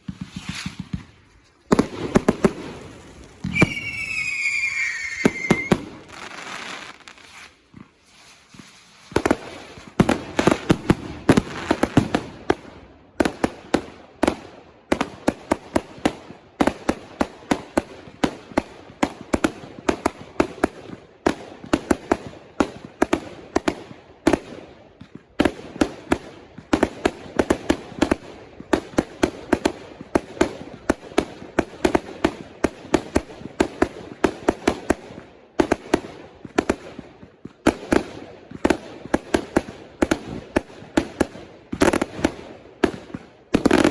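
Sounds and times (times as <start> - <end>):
fireworks banging: 0.0 - 12.3, 37.7 - 43.9.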